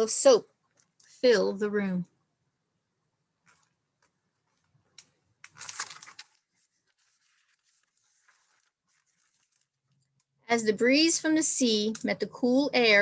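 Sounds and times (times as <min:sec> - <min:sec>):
paper page rustling: 0:03.4 - 0:10.3.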